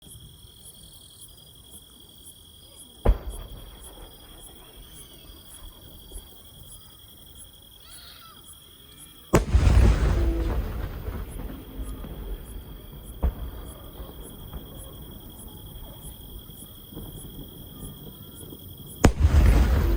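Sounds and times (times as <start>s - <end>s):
insects chirping: 0.0s - 19.9s
fireworks bursting: 3.0s - 6.3s, 9.3s - 19.9s.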